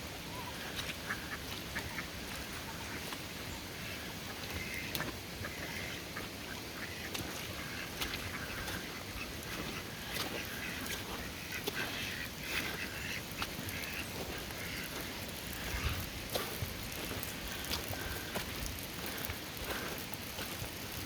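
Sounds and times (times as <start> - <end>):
ducks quacking: 0.3 - 20.6
heavy rain hissing: 6.5 - 21.0
water dripping: 9.4 - 21.0.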